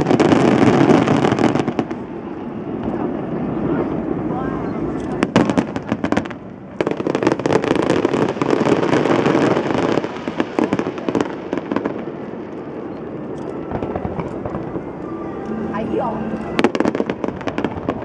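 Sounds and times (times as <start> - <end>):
fireworks bangs and crackling: 0.0 - 15.1, 15.7 - 18.0.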